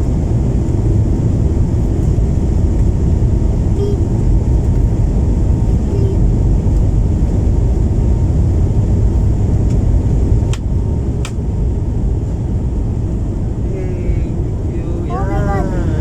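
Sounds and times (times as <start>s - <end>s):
jet engines rumbling in cabin: 0.0s - 16.0s.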